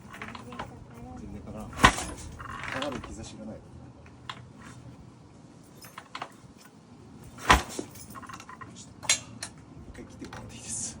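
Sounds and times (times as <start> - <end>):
metal clinks and knocks: 0.0 - 3.2, 5.6 - 10.5.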